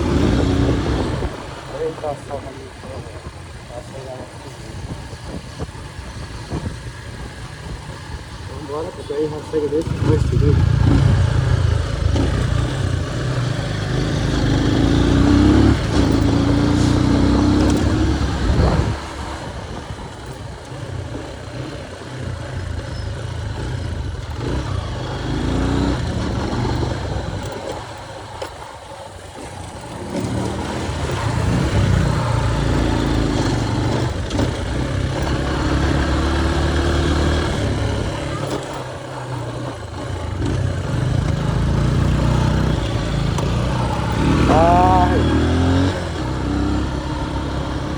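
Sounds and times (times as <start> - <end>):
wind rumble on microphone: 0.0 - 8.7, 15.7 - 21.1
motorcycle engine revving: 0.0 - 47.9.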